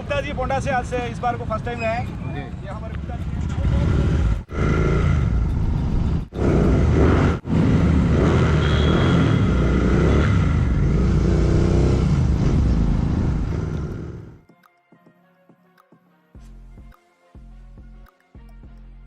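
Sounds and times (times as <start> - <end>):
motorcycle engines revving: 0.0 - 14.4.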